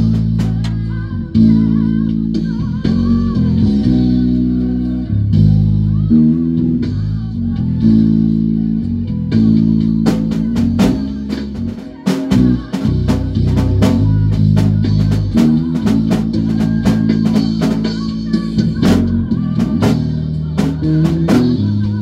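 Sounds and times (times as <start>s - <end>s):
drum kit beat: 0.0s - 4.5s, 7.8s - 22.0s
bass guitar: 0.0s - 22.0s
guitar: 0.0s - 22.0s.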